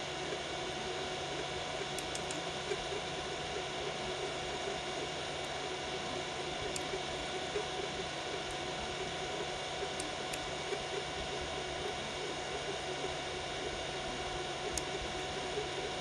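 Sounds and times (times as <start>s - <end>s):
cooling fans whirring: 0.0s - 16.0s.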